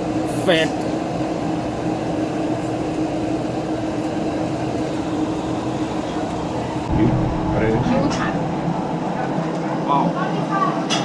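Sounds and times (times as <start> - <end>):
machine hum: 0.0 - 10.8.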